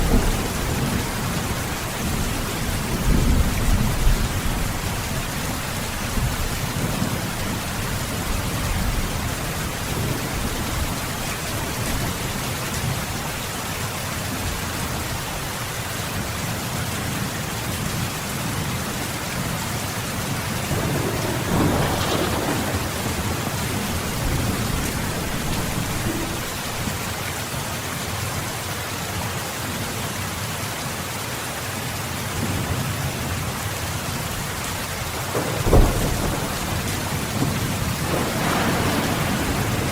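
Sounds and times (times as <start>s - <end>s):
thunder rumble: 0.0s - 13.0s, 20.3s - 27.1s, 35.0s - 39.9s
heavy rain: 0.0s - 39.9s.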